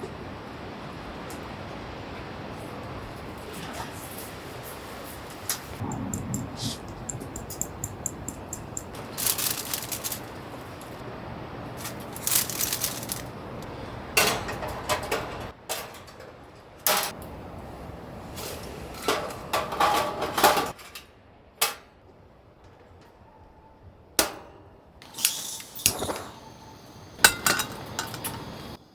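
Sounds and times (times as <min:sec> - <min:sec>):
steady background hiss: 0:00.0 - 0:28.9
kitchenware clinking and rattling: 0:05.8 - 0:11.0, 0:11.8 - 0:17.2, 0:18.8 - 0:20.9, 0:27.2 - 0:28.8.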